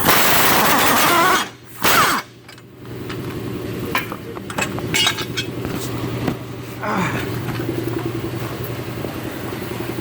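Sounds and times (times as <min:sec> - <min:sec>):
steady low hum: 0:01.4 - 0:10.0
metallic clinks of tools: 0:04.0 - 0:05.5.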